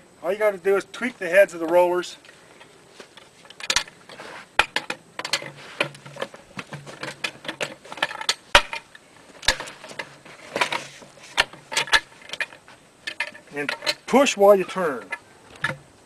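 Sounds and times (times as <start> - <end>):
metallic clanks of steel rollers: 3.4 - 15.8.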